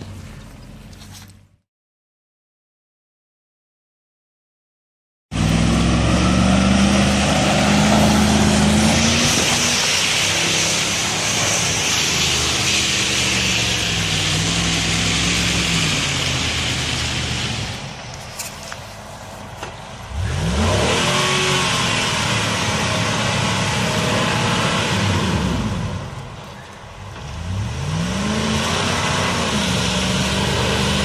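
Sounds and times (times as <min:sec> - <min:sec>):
engine running at high revs: 0:05.4 - 0:17.8, 0:20.1 - 0:26.1, 0:27.2 - 0:31.0.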